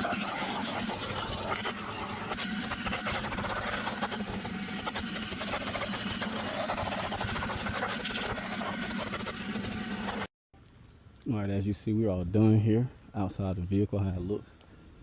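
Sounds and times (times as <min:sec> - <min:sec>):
machine humming and hissing: 0:00.0 - 0:10.3.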